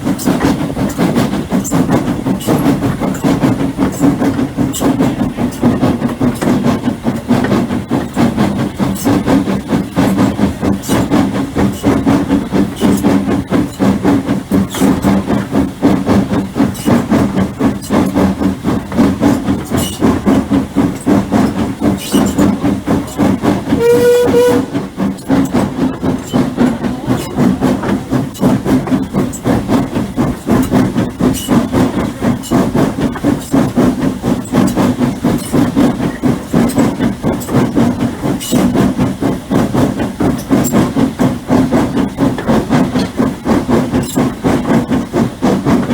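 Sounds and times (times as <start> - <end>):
steam locomotive rumbling: 0.0 - 45.9
steam whistle toot: 23.7 - 24.8.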